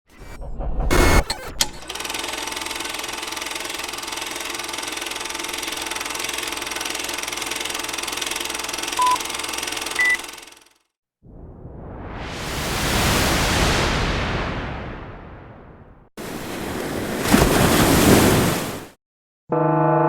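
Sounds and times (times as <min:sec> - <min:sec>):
short beeps: 0:09.0 - 0:09.2, 0:10.0 - 0:10.2.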